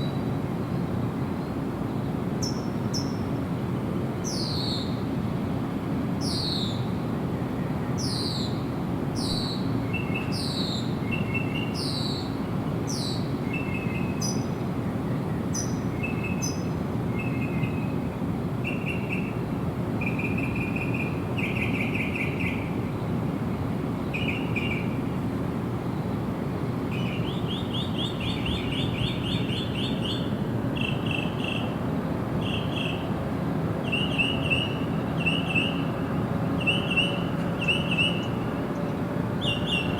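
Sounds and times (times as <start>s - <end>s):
birds calling and singing: 26.9s - 31.8s, 32.4s - 33.1s, 33.8s - 35.9s, 36.6s - 39.9s.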